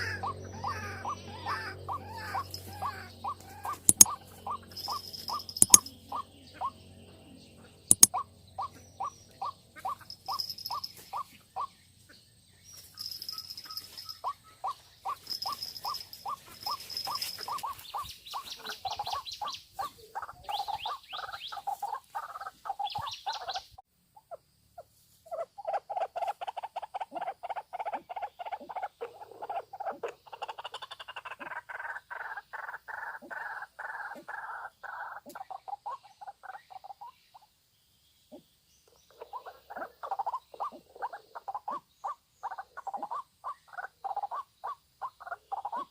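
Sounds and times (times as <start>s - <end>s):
sharp click: 3.9s - 4.2s, 5.3s - 5.9s.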